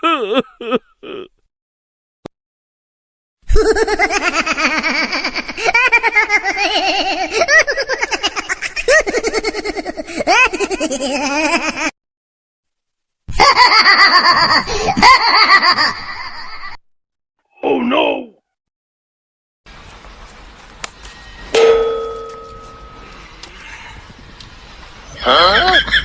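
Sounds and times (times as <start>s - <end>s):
high-pitched giggling: 3.5s - 11.9s.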